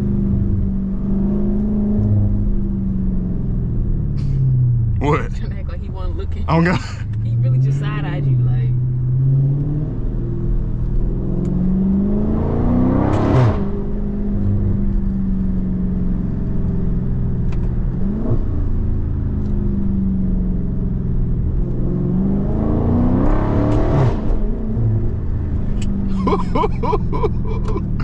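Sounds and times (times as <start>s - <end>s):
loud car exhaust accelerating: 0.0s - 28.0s.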